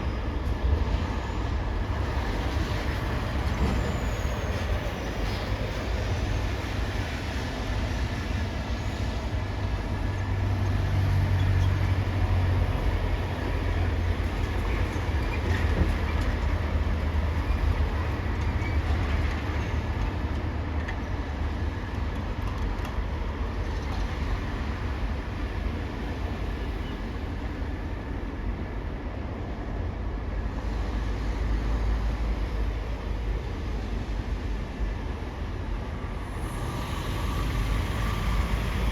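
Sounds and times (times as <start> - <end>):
heavy engines rumbling: 30.6 - 38.9.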